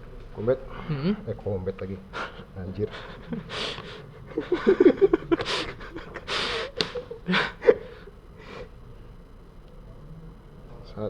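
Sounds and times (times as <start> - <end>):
breathy huffs and gasps: 2.1 - 4.5, 5.3 - 8.7
person laughing: 2.2 - 8.6.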